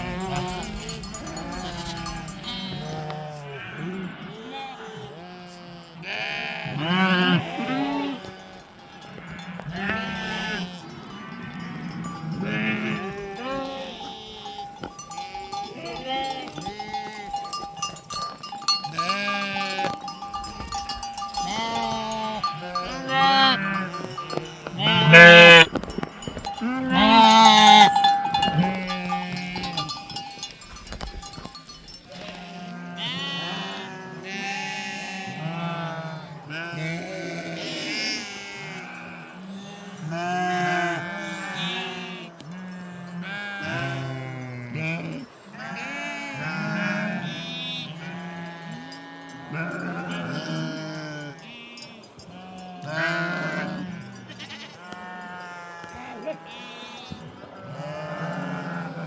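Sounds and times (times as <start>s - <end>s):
bell ringing: 0.0s - 3.0s, 8.6s - 32.5s
sheep bleating: 0.0s - 59.0s.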